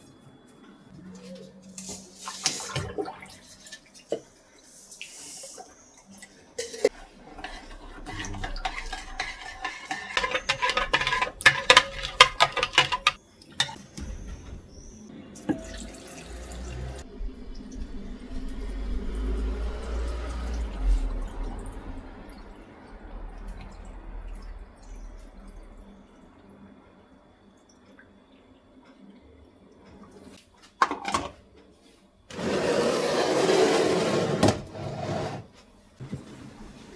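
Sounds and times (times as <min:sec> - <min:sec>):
water running at a sink: 0:01.8 - 0:28.7
dishes and glass clinking: 0:06.6 - 0:14.8.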